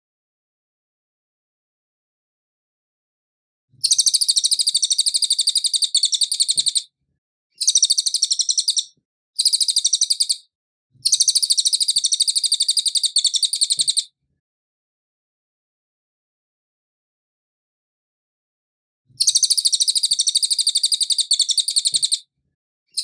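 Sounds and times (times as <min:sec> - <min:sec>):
bird singing rapid high trills: 0:03.8 - 0:06.9, 0:07.6 - 0:10.4, 0:11.1 - 0:14.1, 0:19.2 - 0:22.2.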